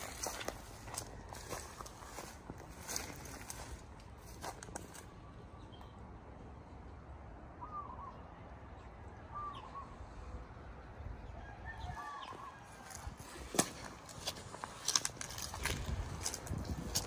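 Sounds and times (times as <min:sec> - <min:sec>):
bird curling calls: 0:09.3 - 0:10.0
steady low rumble: 0:12.9 - 0:17.0.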